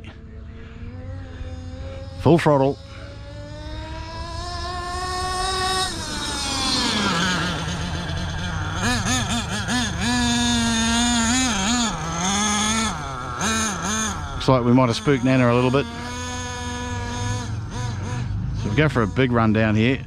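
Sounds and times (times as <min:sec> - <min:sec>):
nitro engine at full throttle: 0:00.0 - 0:20.0.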